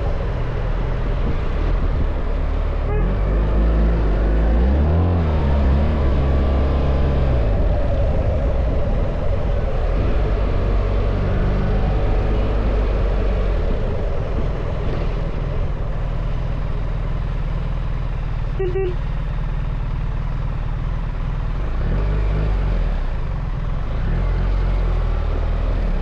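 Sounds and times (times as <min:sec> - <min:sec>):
wind and road noise: 0:00.0 - 0:26.0
motorcycle engine running: 0:11.7 - 0:26.0.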